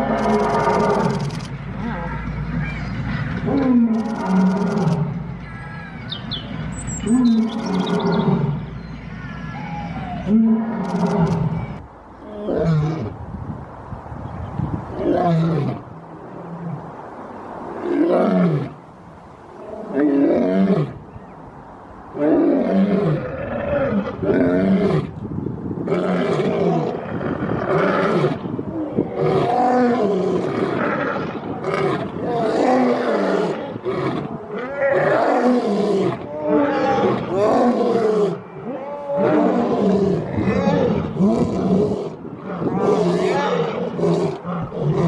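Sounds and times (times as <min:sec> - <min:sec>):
big cat roaring and growling: 0:00.0 - 0:02.3, 0:22.2 - 0:25.1, 0:25.8 - 0:45.0.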